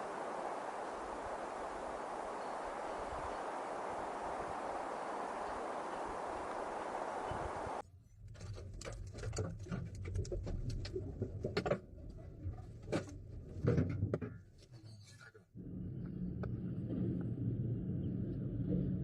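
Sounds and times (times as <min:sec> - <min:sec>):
wind rumble: 0:00.0 - 0:07.8.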